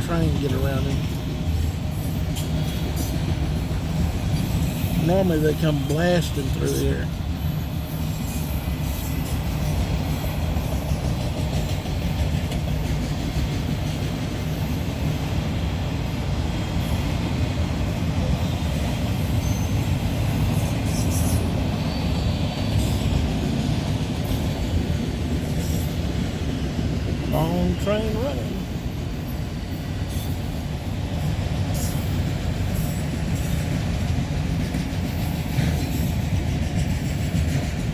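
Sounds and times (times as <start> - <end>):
freight train rumbling on rails: 0.0 - 37.9
faint wheel squeals: 19.2 - 19.9.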